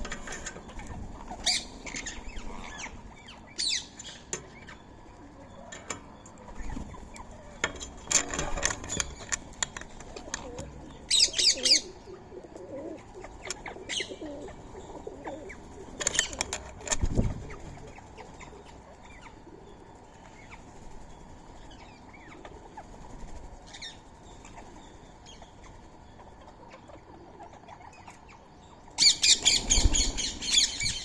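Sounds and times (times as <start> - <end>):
harsh parakeet calls: 0.7 - 4.9, 10.6 - 16.5, 23.7 - 31.0
wings flapping: 6.5 - 19.4, 29.2 - 31.0.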